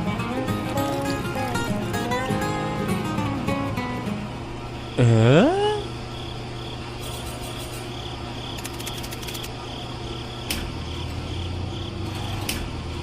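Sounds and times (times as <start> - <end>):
insects chirping: 0.0 - 13.0
steady low hum: 0.0 - 13.0
sharp click: 10.5 - 10.7.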